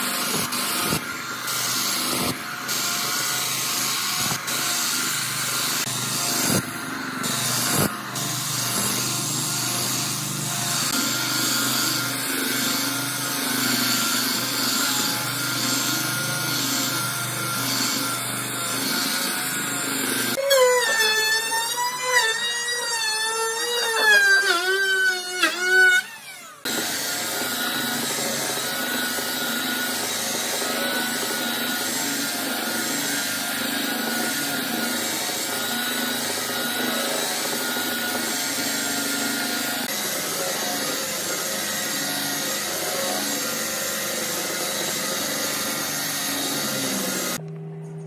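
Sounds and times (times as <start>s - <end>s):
power tool cutting wood: 0.0s - 47.4s.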